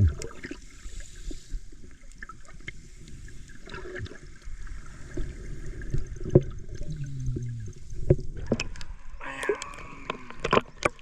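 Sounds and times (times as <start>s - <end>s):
low rumble: 0.0s - 0.3s
water splashing and trickling: 0.0s - 11.0s.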